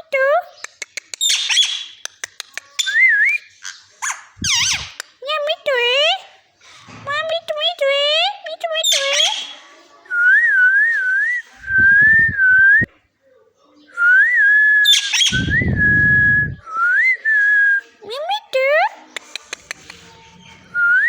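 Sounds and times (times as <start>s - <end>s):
parrot whistling: 2.8s - 5.0s, 14.8s - 16.6s
low rumbling noise: 15.3s - 16.6s.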